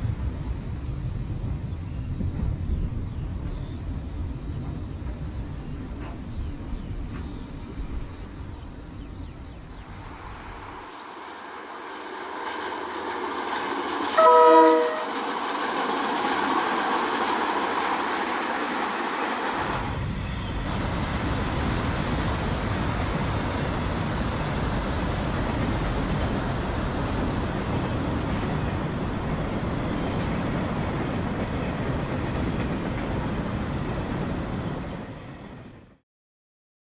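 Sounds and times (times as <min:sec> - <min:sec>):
diesel locomotive passing: 0:00.0 - 0:36.0
train horn blast: 0:14.1 - 0:15.2.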